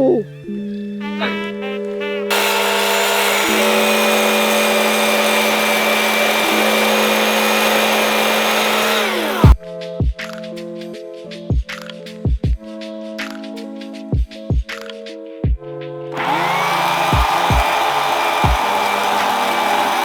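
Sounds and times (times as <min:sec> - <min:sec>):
chainsaw running: 0:02.3 - 0:09.6, 0:16.2 - 0:20.0.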